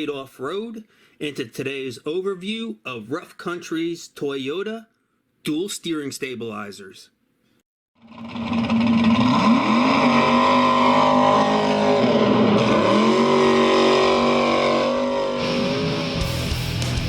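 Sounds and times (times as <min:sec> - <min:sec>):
engine running at high revs: 0:08.0 - 0:16.3.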